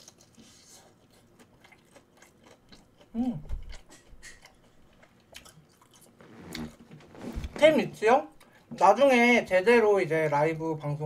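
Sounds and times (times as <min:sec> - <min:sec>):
crunchy chewing: 0:00.0 - 0:07.6.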